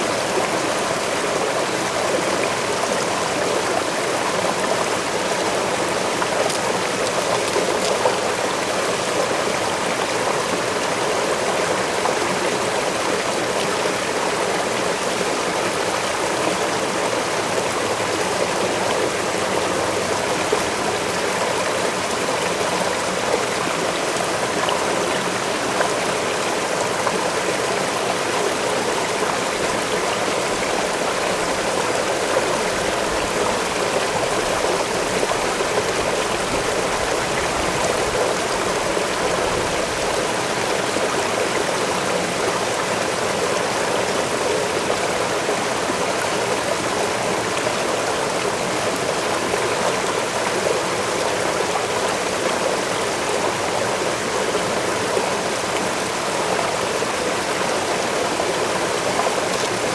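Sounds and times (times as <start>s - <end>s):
waterfall and stream rushing: 0.0s - 59.9s.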